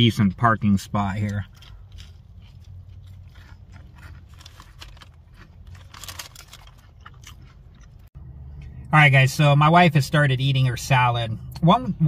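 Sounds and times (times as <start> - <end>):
steady low hum: 0.0 - 12.0
person chewing crunchy food: 0.8 - 8.2.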